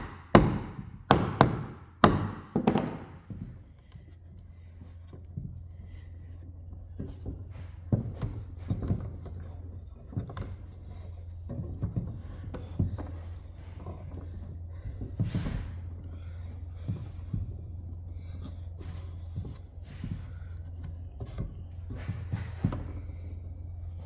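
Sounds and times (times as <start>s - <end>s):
wood knocks and taps: 0.0s - 3.5s
steady low hum: 0.0s - 24.0s.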